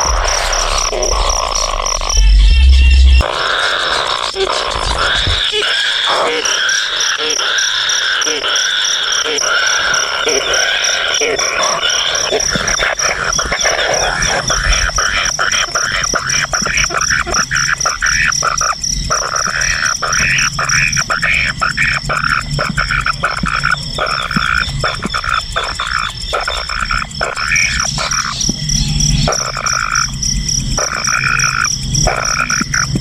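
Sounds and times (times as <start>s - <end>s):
high pulsing buzz: 0.0s - 5.6s
frogs croaking in chorus: 0.0s - 33.0s.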